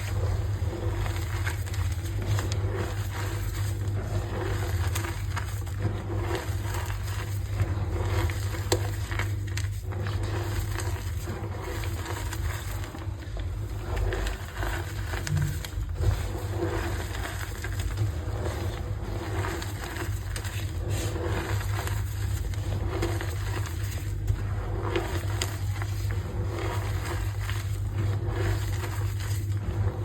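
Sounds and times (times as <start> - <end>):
chalk crunching by hand: 0.0 - 30.0
steady low hum: 0.0 - 30.0.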